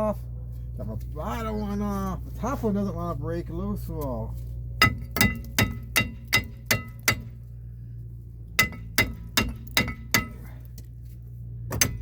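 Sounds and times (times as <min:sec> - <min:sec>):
hammer striking metal: 0:04.8 - 0:07.4, 0:08.6 - 0:10.5, 0:11.8 - 0:12.0.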